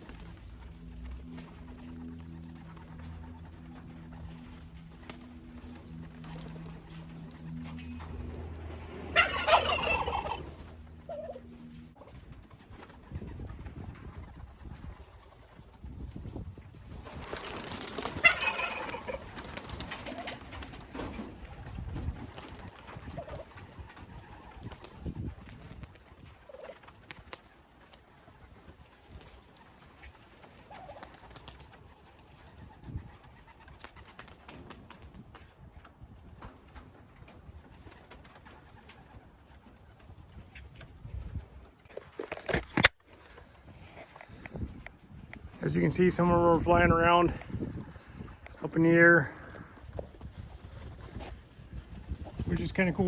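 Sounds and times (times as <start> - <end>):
pigeons cooing: 0.0 - 15.6, 17.0 - 34.6
low steady hum: 0.0 - 26.0
loud bird call: 7.2 - 11.6.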